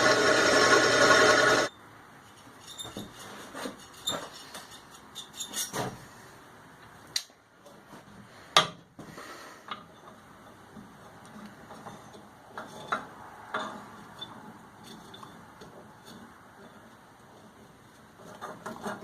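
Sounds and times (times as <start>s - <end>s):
power tool running: 0.0s - 1.7s.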